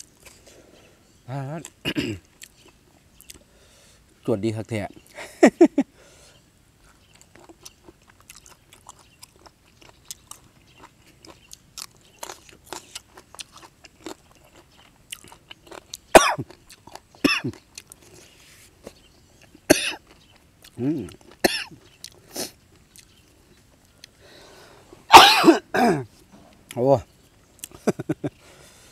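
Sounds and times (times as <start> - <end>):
man chewing with wet smacks: 1.6 - 3.5, 6.8 - 24.2, 26.6 - 28.4
man coughing sharply: 1.8 - 2.2, 16.2 - 16.4, 19.7 - 20.0, 21.4 - 21.7, 25.1 - 26.1.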